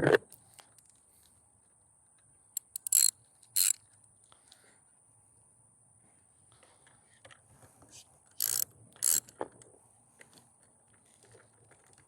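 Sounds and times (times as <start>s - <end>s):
socket ratchet clicking: 2.6s - 3.8s, 8.4s - 9.3s.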